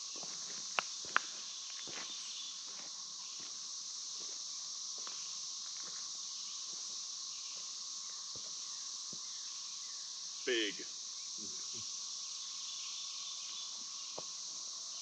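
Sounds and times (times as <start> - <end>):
high-pitched insect chorus: 0.0 - 15.0
faint footsteps: 0.1 - 7.7.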